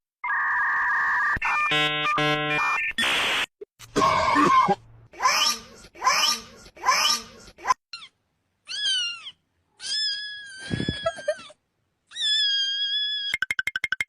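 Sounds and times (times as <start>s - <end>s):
cat meowing: 8.0s - 11.4s.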